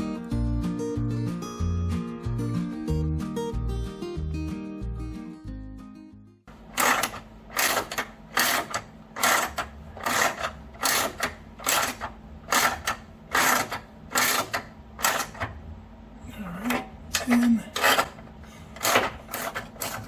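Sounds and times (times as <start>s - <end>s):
wrench turning bolt: 6.8s - 15.5s, 17.2s - 18.2s.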